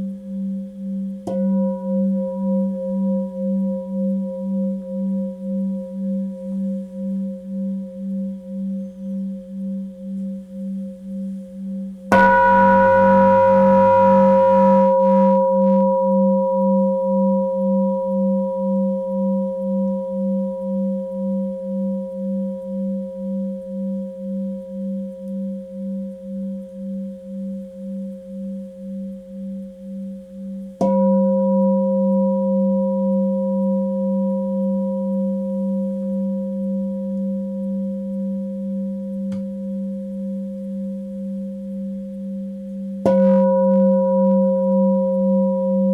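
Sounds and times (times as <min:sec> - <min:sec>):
singing bowl ringing: 0:12.1 - 0:19.7, 0:43.0 - 0:45.9.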